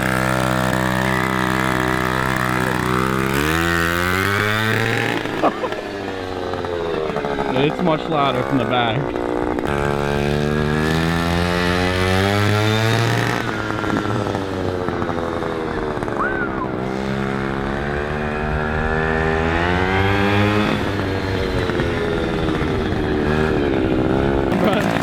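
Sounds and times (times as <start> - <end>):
small two-stroke engine revving: 0.0 - 25.0.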